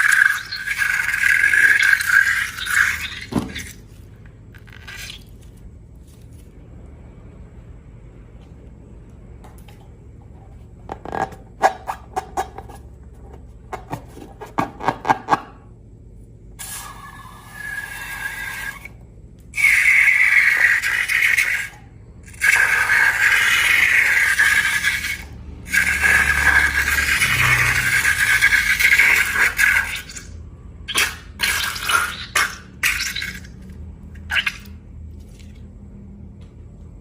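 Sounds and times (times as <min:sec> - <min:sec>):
liquid pouring from balloons: 0:00.0 - 0:05.4, 0:30.9 - 0:34.8.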